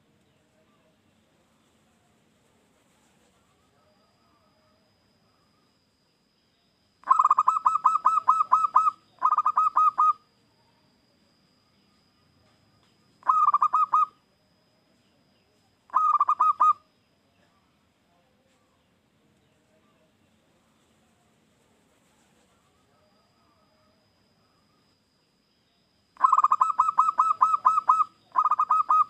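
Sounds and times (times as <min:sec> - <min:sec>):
dove cooing: 0:07.0 - 0:10.2, 0:13.2 - 0:14.2, 0:15.9 - 0:16.8, 0:26.2 - 0:29.0.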